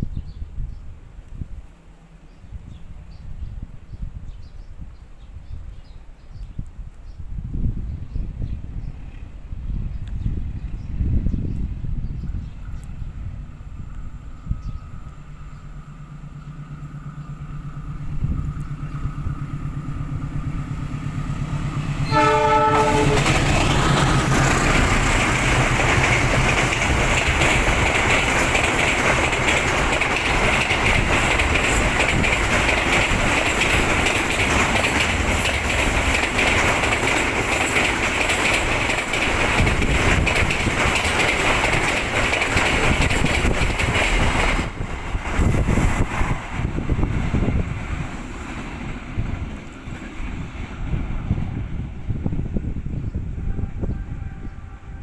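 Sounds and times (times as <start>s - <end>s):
train wheels rushing on rails: 7.4s - 55.0s
diesel train engine droning: 12.3s - 55.0s
train horn blast: 22.0s - 23.5s, 53.1s - 55.0s.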